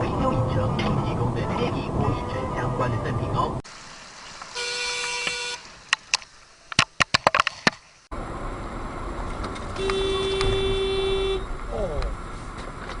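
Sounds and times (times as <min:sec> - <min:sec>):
steady road noise: 0:00.0 - 0:13.0
car horn: 0:04.5 - 0:05.7, 0:09.8 - 0:11.6.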